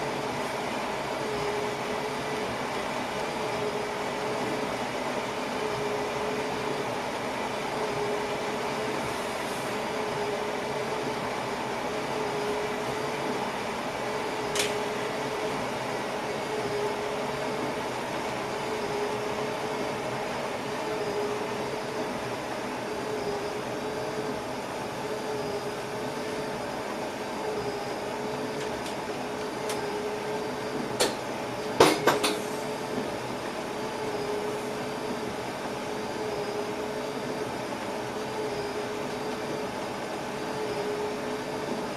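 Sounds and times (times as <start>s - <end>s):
sharp click: 14.5s - 14.8s.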